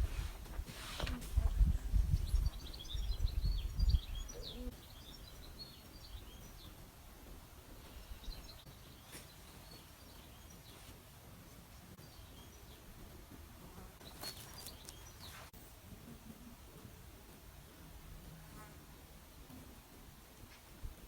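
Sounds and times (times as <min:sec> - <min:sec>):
faint steady background noise: 0:00.0 - 0:21.0
small birds chirping: 0:01.3 - 0:15.6.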